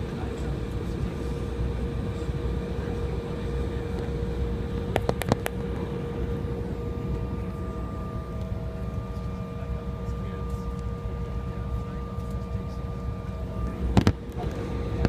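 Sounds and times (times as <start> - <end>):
airliner cabin rumble: 0.0 - 15.0
whining tones: 4.0 - 15.0.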